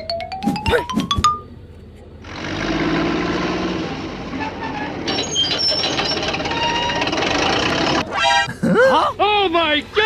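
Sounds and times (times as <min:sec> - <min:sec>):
truck engine running: 0:00.9 - 0:08.2.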